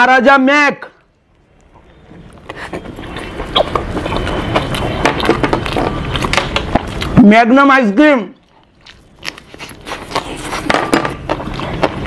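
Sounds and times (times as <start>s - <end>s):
close-miked chewing: 1.0s - 7.2s, 8.4s - 10.6s, 11.4s - 12.0s.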